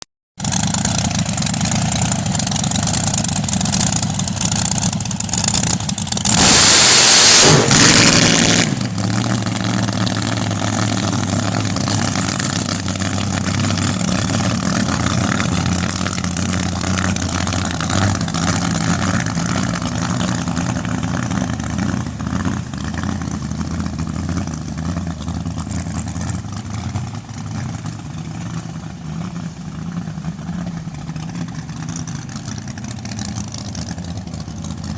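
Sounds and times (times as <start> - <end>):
supercharged engine revving: 0.4 - 24.2.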